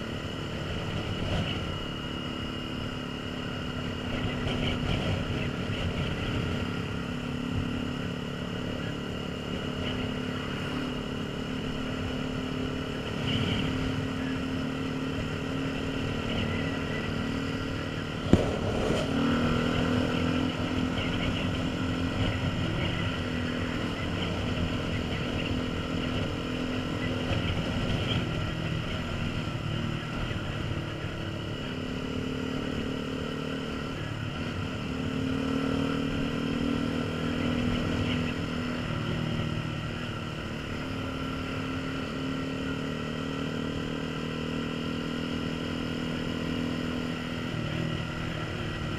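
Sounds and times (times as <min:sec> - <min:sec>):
motorcycle engine running: 0:00.0 - 0:48.9
wind rushing over microphone: 0:17.8 - 0:26.4.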